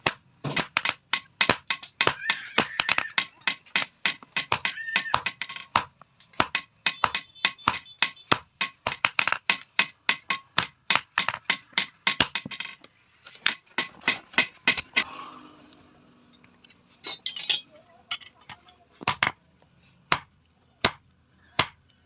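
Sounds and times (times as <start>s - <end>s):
hand hammer striking metal: 0.0s - 12.8s, 13.4s - 15.1s, 19.0s - 19.4s, 20.1s - 21.0s, 21.6s - 21.8s.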